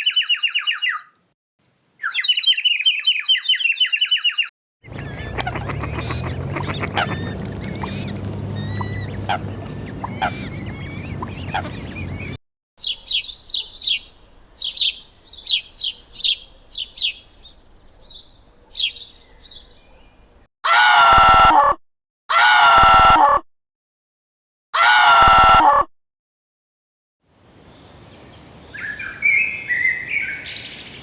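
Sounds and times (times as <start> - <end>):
bird falling chirps: 2.0 - 12.4
faint bird chirps: 2.0 - 20.3
large animal drawn-out calls: 4.9 - 12.4
low steady hum: 4.9 - 12.4.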